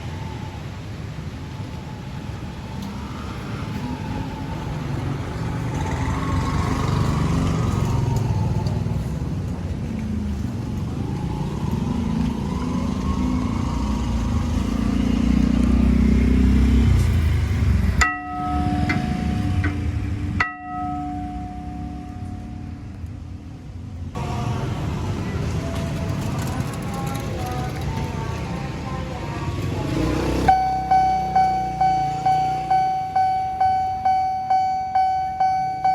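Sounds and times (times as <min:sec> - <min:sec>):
heavy vehicle rumble: 0:00.0 - 0:35.9
level crossing warning alarm: 0:18.0 - 0:22.8, 0:30.5 - 0:35.9.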